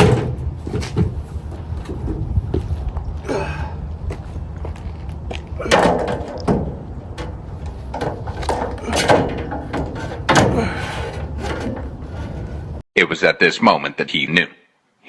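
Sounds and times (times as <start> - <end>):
metal parts clunking: 0.0 - 2.3, 3.3 - 12.8
steady low hum: 0.0 - 12.8.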